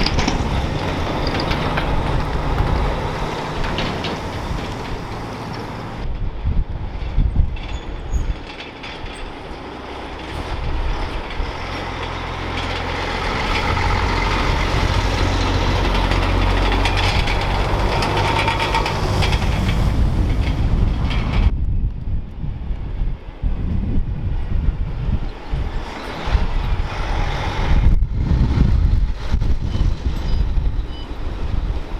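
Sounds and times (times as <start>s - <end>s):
rattling and clatter: 0.0s - 21.6s
heavy vehicle engine rumble: 0.0s - 31.9s.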